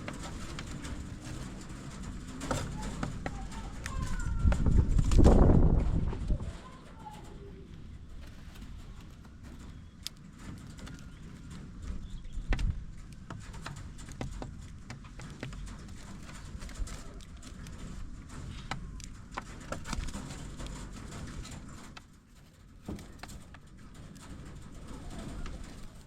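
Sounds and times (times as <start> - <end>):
sharp taps and knocks: 0.0 - 5.5, 9.0 - 24.7
low rumble: 3.3 - 6.7.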